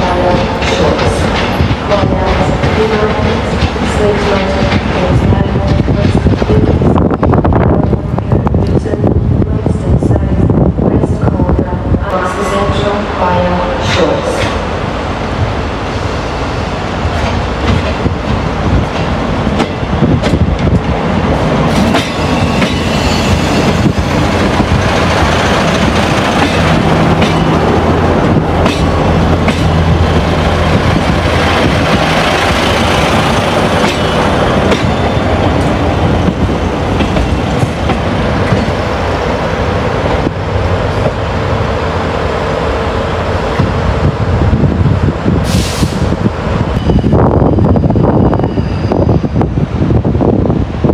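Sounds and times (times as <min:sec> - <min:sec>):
train wheels clicking over rail joints: 0:17.1 - 0:38.8.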